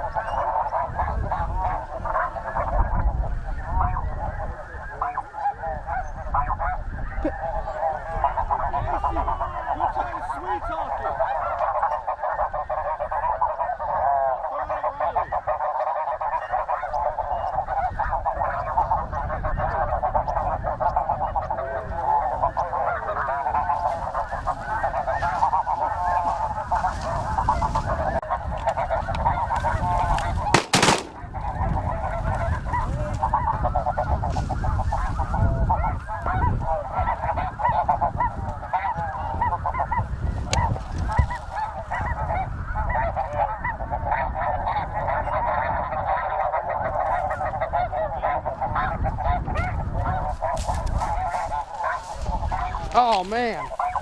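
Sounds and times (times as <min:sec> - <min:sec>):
flock of geese honking: 0:00.0 - 0:54.0
sharp crack: 0:30.5 - 0:31.4.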